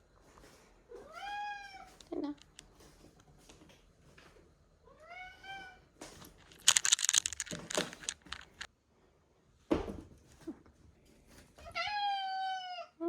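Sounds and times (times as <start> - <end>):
crinkly clicking and rustling: 1.9 - 4.4, 6.0 - 8.7.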